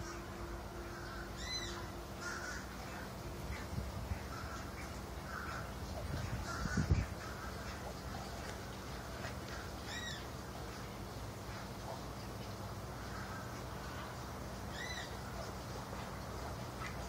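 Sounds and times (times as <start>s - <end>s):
bird caw call: 0.9s - 3.1s, 4.2s - 5.8s, 6.4s - 7.8s, 9.4s - 10.3s, 13.0s - 15.3s.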